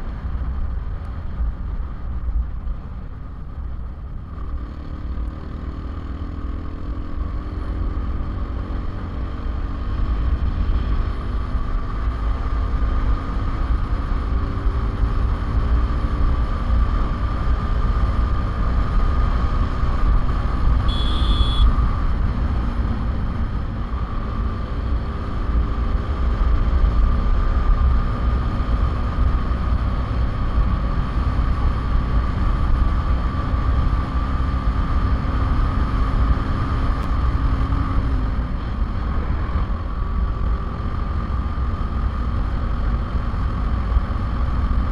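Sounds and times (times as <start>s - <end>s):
motorcycle engine running: 0.0s - 44.9s
short high beep: 20.8s - 21.8s.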